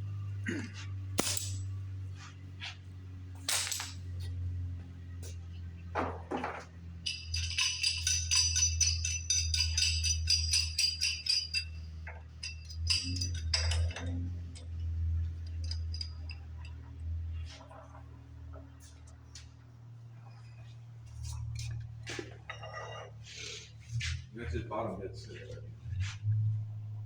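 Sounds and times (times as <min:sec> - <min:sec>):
steady low hum: 0:00.0 - 0:11.8
clinking: 0:01.2 - 0:02.0, 0:03.4 - 0:04.5, 0:06.0 - 0:17.9, 0:21.2 - 0:23.2
rapid metallic jingling: 0:01.2 - 0:02.0, 0:03.4 - 0:04.6, 0:06.9 - 0:16.8.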